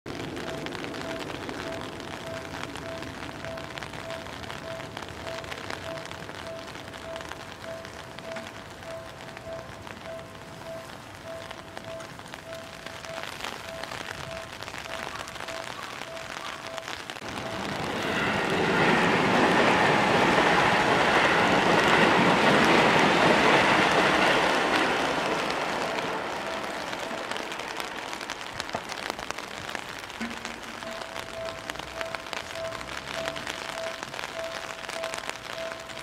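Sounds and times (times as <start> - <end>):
electric train passing: 0.1 - 36.0
short electronic beeps: 0.4 - 17.6.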